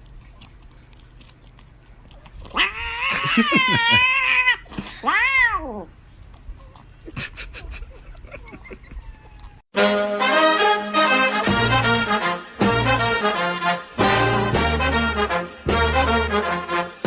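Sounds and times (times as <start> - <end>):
cat meowing: 2.5 - 5.9
cat yowling: 2.5 - 5.9, 8.9 - 9.6.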